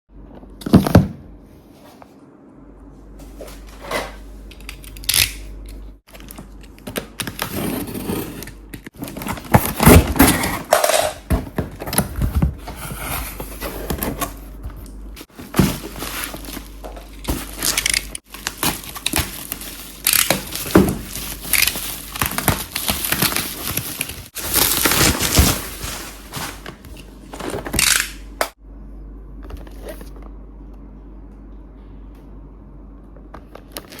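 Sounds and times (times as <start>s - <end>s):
plastic and cardboard crinkling: 6.1s - 28.0s.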